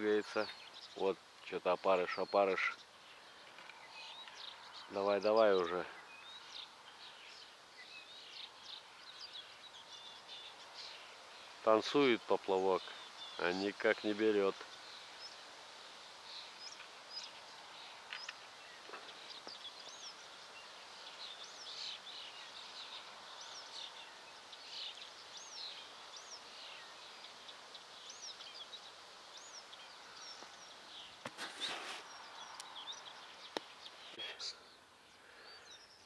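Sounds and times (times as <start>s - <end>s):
faint background hiss: 0.0s - 36.0s
small birds chirping: 0.0s - 36.0s
brief rustling: 31.2s - 32.2s.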